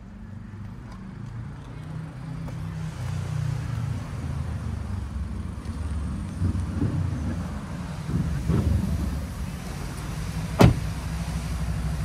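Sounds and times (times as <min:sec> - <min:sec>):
car engine idling: 0:09.0 - 0:12.0.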